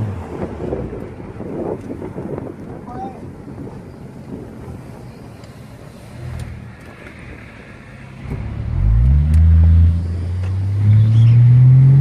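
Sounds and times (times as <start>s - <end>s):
car engine accelerating: 7.8s - 12.0s.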